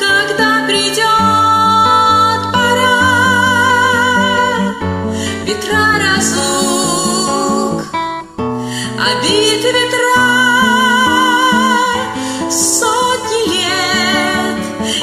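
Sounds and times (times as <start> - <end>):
acoustic guitar accompaniment: 0.0 - 15.0
person singing with vibrato: 0.0 - 15.0.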